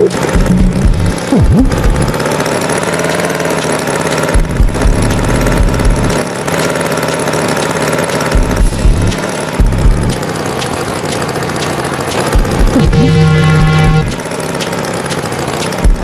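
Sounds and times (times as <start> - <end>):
brief rising sound effect: 0.0 - 2.1, 12.2 - 14.2
cartoon tractor engine running: 0.0 - 16.0.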